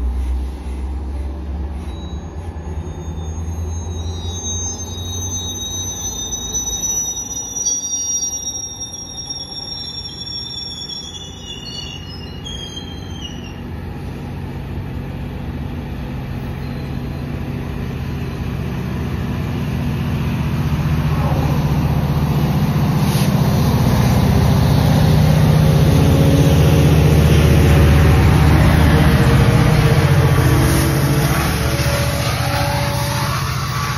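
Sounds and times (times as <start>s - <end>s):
diesel locomotive engine drone: 0.0s - 33.9s
train rumbling past: 0.0s - 33.9s
high wheel squeal: 1.2s - 13.8s, 16.3s - 17.6s, 26.2s - 33.9s.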